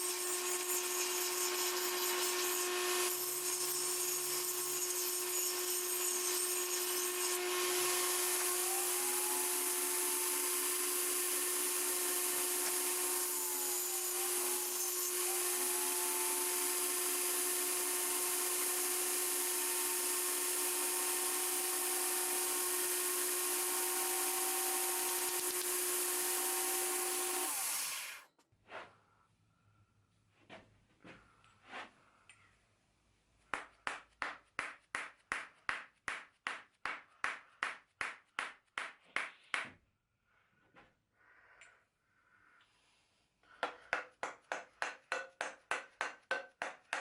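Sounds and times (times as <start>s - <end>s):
electric power tool running: 0.0s - 28.2s.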